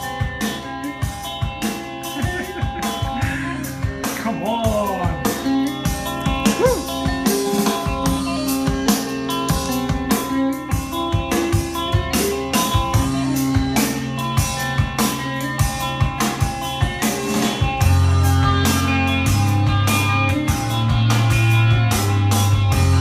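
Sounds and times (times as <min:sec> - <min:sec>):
rock music from a record: 0:00.0 - 0:23.0
loud low bass notes: 0:17.6 - 0:23.0.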